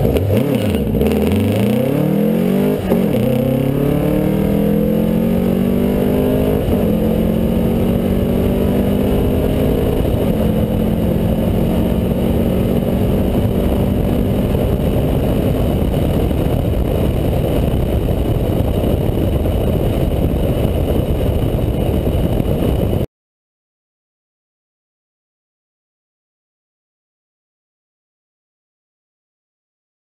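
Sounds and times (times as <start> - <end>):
wind and road noise: 0.0 - 23.1.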